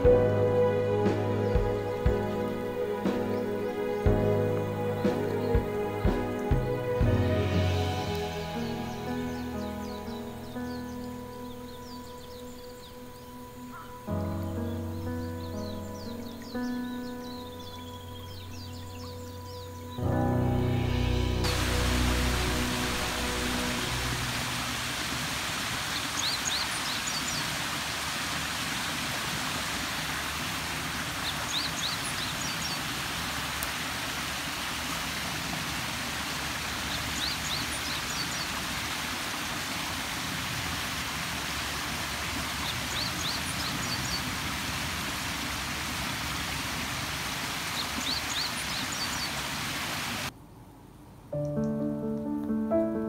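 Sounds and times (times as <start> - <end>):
steady hiss of water: 0.0 - 50.4
bird song: 3.3 - 6.8, 8.1 - 21.1, 25.8 - 27.6, 31.2 - 32.9, 36.9 - 38.6, 42.6 - 44.3, 47.7 - 49.4.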